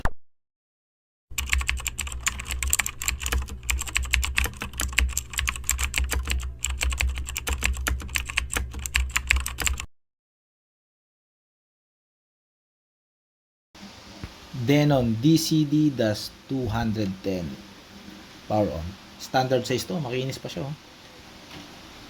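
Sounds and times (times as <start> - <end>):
steady low hum: 1.3 - 9.8, 13.8 - 21.2
keyboard typing clicks: 1.4 - 9.9.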